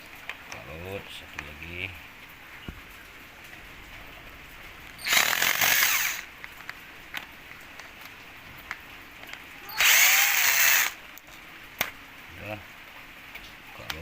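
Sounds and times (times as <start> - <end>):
electric drill backing out screws: 5.0 - 6.3, 9.7 - 11.0.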